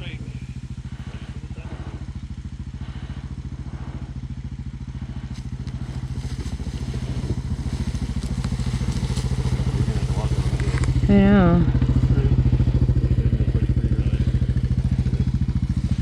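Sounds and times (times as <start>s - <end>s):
atv engine idling: 0.0s - 16.0s
light clicks and clatter: 5.4s - 11.1s.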